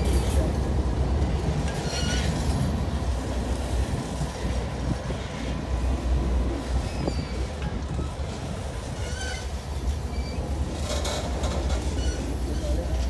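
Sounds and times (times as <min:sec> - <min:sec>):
train wheels rumbling on rail: 0:00.0 - 0:13.0
wheel squeals: 0:01.7 - 0:02.7, 0:06.8 - 0:08.1, 0:08.9 - 0:13.0.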